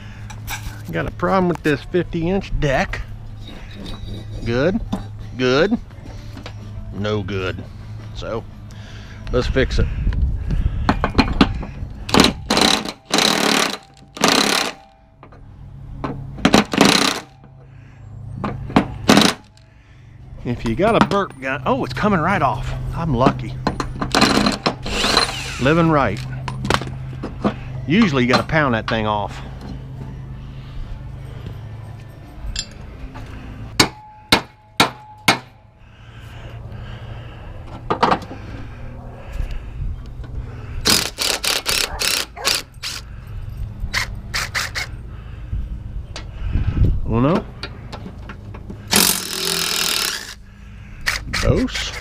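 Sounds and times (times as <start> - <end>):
impact wrench hammering: 10.9 - 15.3, 16.0 - 17.5, 18.4 - 19.6, 23.6 - 25.7, 33.8 - 35.6, 48.9 - 50.4
hammer striking steel: 33.8 - 35.6.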